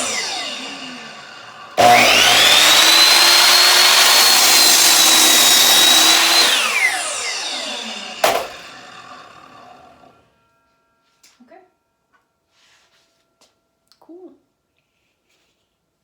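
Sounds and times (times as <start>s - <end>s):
electric miter saw whining: 0.0s - 10.2s.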